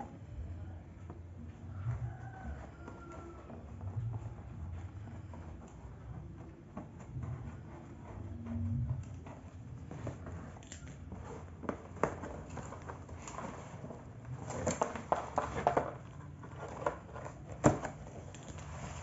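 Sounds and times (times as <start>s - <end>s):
packaging rustling and crinkling: 9.4s - 19.0s.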